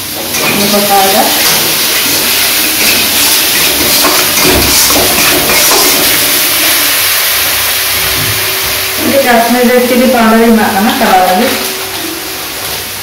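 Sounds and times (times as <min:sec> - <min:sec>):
spice paste sizzling in oil: 0:00.0 - 0:10.7.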